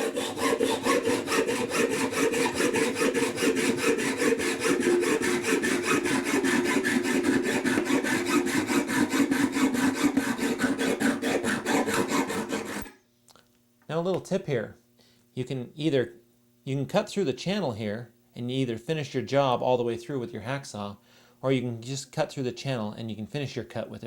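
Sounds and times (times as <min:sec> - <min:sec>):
hacksaw cutting metal: 0:00.0 - 0:13.0.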